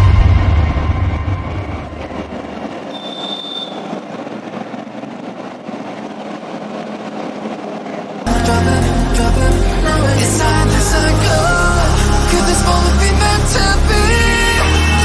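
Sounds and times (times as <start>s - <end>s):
high-pitched squeal: 0.0s - 4.1s
music: 8.3s - 15.0s.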